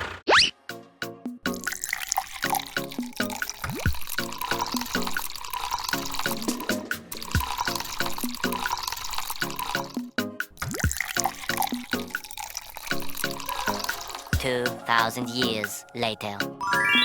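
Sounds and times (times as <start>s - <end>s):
bouncy background music: 0.6s - 5.3s, 5.9s - 12.3s, 12.9s - 17.0s
water-drop plop glides: 1.6s - 14.3s.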